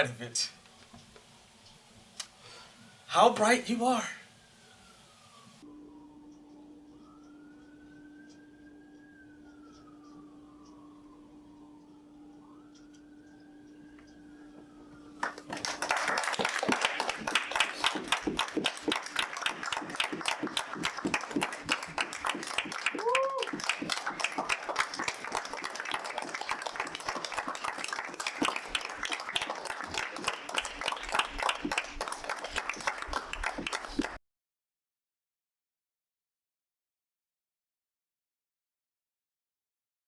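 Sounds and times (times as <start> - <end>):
audience applauding: 15.2 - 34.2
person whooping: 15.5 - 31.9.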